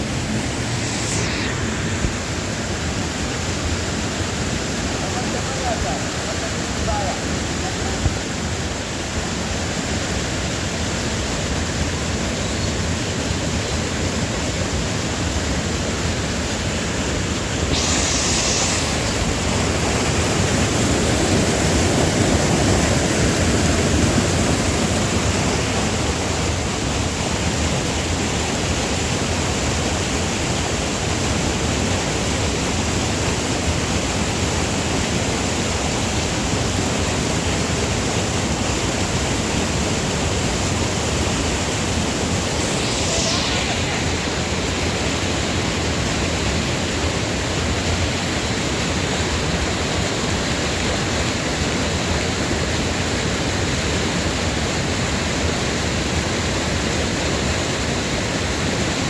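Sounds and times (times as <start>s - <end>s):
waterfall roaring: 0.0s - 0.8s, 1.6s - 15.3s.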